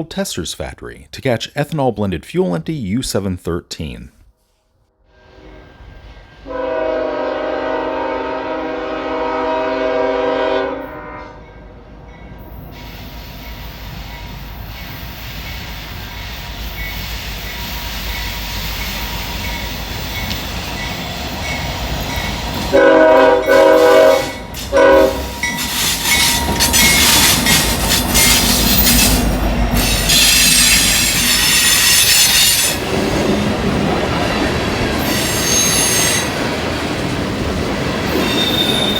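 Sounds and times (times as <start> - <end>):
diesel locomotive horn blasts: 5.1 - 11.6, 22.6 - 29.2
wheels squealing: 24.1 - 33.5, 34.3 - 36.5, 38.0 - 38.9
wheels clattering over rail joints: 25.4 - 38.9.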